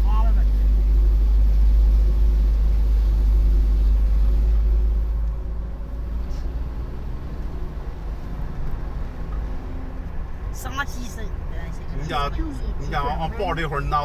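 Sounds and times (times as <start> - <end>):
faint engine tone: 0.0 - 8.2
car driving on road: 0.0 - 14.0.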